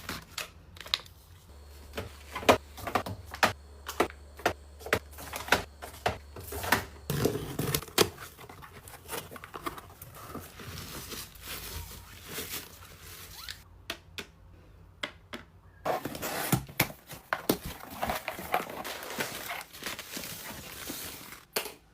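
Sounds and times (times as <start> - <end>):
plastic crinkling and tearing: 17.6 - 21.5.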